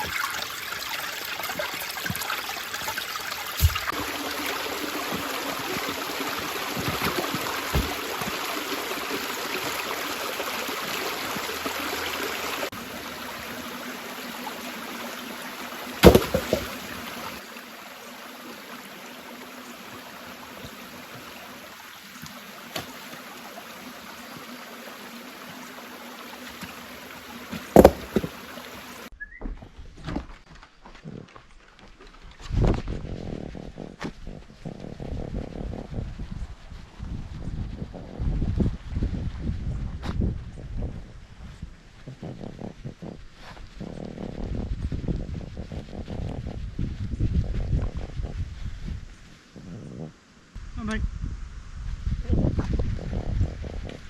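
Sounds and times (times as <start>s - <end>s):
creek water running: 0.0s - 29.1s, 30.9s - 51.0s
sharp knocks: 16.0s - 16.9s, 27.6s - 28.4s.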